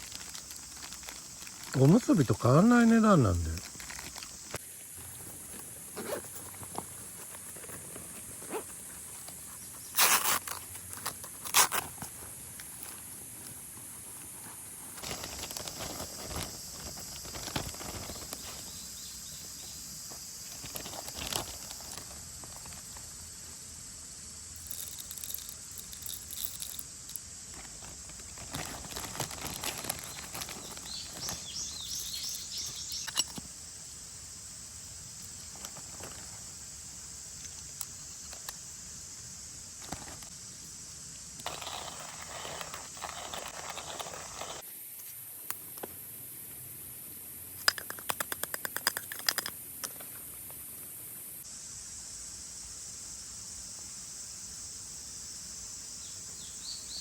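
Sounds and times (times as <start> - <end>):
high-pitched insect drone: 30.0 - 34.0
bird chirps: 30.8 - 33.2.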